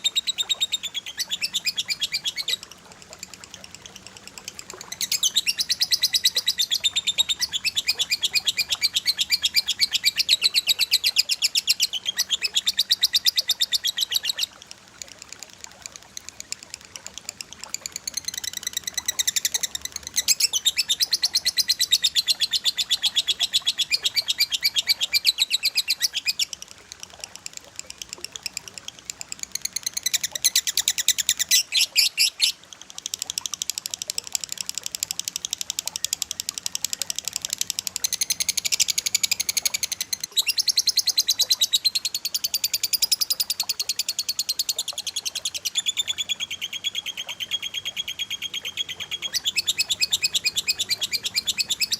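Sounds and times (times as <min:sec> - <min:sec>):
small birds chirping rapidly: 0:00.0 - 0:14.6, 0:15.6 - 0:33.3.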